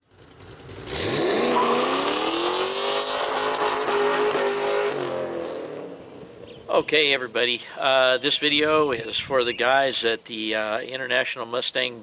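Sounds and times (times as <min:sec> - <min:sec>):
car engine accelerating hard: 0:00.1 - 0:06.0.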